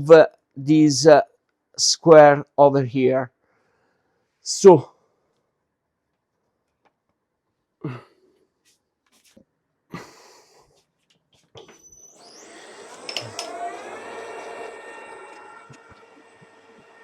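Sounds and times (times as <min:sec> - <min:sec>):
milling machine spindle whine: 0:11.8 - 0:17.0.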